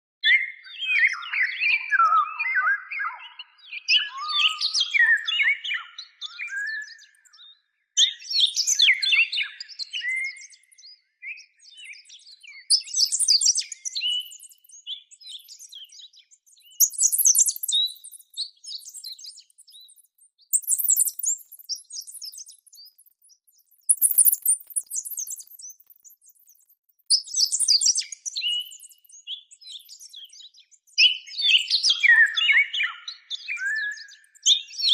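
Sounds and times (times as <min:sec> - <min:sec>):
parrot chirping: 0:20.6 - 0:21.6, 0:23.9 - 0:25.6.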